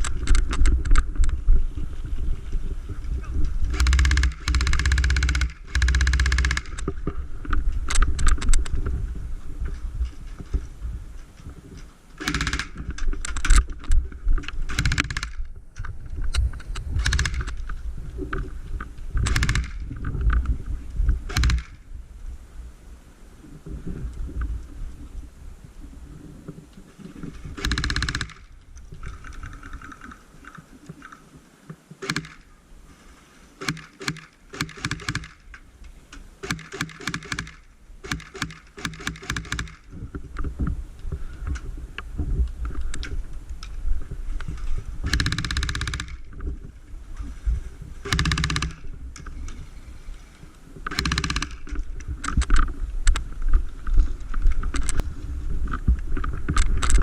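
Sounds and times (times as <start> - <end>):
wind buffeting microphone: 0.0 - 30.1
airsoft guns firing rapidly: 3.7 - 6.8, 12.2 - 12.8, 14.7 - 15.4, 19.3 - 19.8, 21.3 - 21.8, 27.6 - 28.4, 36.4 - 39.8, 45.1 - 46.2, 50.9 - 51.6.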